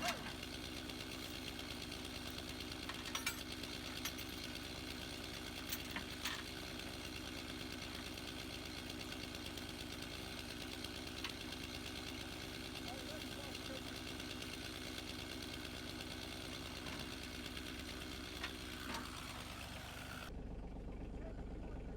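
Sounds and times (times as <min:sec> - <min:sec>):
tractor engine running: 0:00.0 - 0:21.9.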